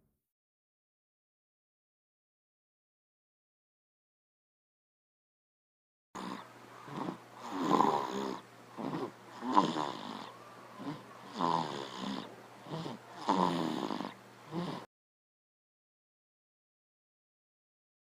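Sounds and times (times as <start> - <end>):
loud snoring: 6.2 - 14.9.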